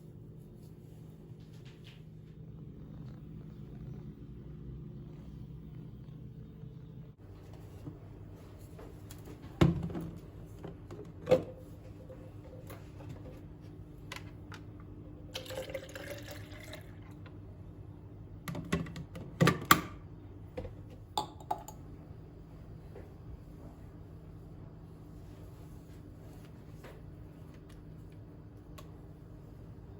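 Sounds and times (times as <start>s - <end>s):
steady low hum: 0.0s - 19.0s, 19.9s - 29.9s
liquid pouring into vessel: 15.3s - 17.2s.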